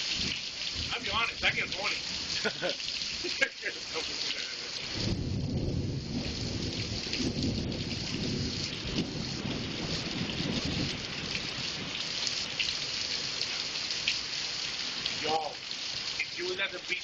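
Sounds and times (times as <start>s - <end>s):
rain hissing and pattering: 0.0s - 17.0s
thunder rumbling: 4.8s - 12.5s.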